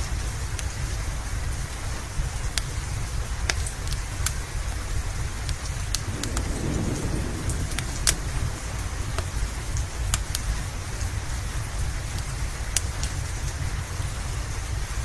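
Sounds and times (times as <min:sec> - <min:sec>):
steady rain: 0:00.0 - 0:15.0
wood fire crackling and popping: 0:00.1 - 0:14.8.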